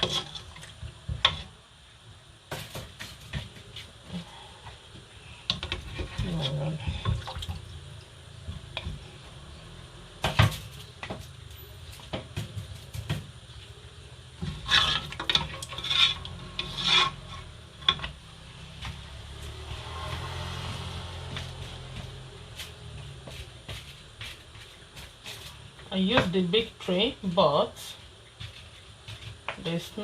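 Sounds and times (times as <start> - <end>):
cookware clicking and scraping: 0.0 - 0.7, 14.4 - 18.2.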